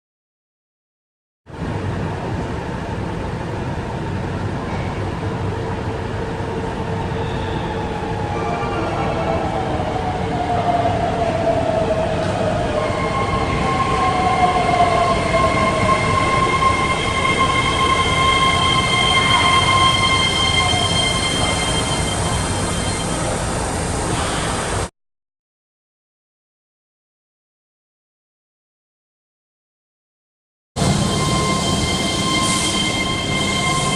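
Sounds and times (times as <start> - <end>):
electric train rumble: 1.5 - 24.9, 30.8 - 33.9.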